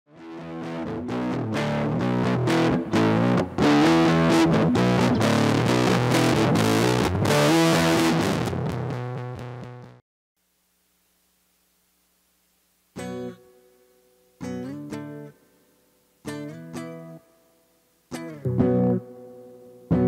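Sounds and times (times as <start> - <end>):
distorted electric guitar chords: 0.1 - 10.0, 13.0 - 15.4, 18.1 - 20.0
faint amp hum: 0.2 - 20.0.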